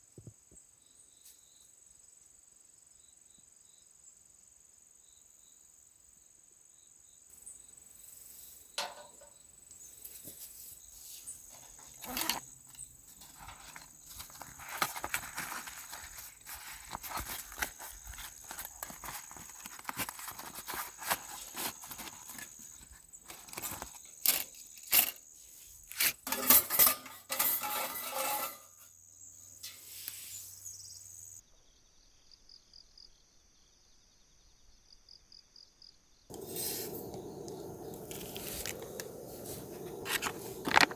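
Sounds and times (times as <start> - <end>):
small hard objects clinking: 25.9 - 28.6, 36.3 - 40.9.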